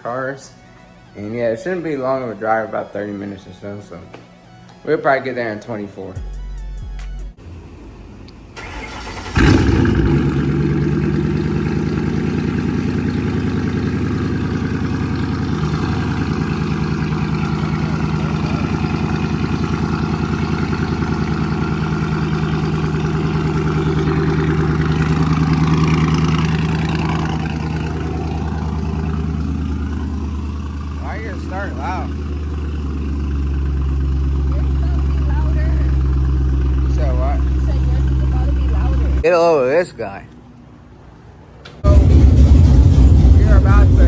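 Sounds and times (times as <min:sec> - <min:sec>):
car engine starting and idling: 0:06.4 - 0:39.2, 0:41.7 - 0:44.0.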